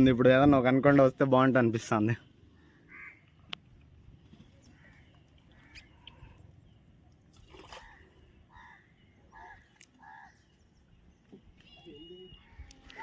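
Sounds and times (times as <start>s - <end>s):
faint bird calls: 2.5s - 3.6s, 4.2s - 6.8s, 7.5s - 13.0s.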